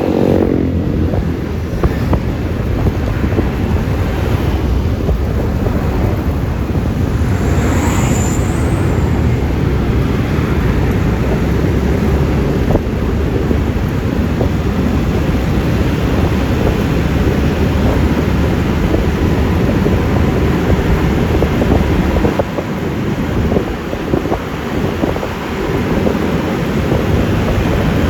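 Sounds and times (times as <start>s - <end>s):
road noise: 0.0s - 28.0s
wind buffeting microphone: 0.0s - 28.0s.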